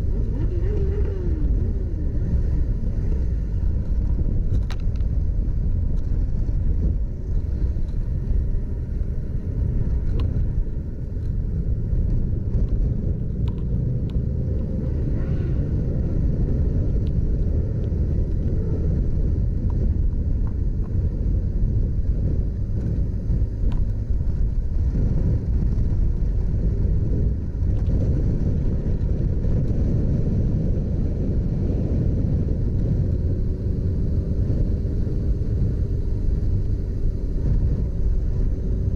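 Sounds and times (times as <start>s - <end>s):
motorcycle engine running: 0.0s - 38.9s
wind rumble on microphone: 0.0s - 38.9s.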